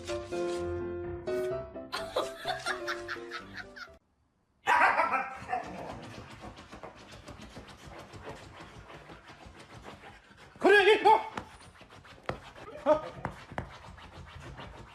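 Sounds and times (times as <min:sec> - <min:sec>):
music: 0:00.0 - 0:04.0
dog panting quickly: 0:05.4 - 0:14.9.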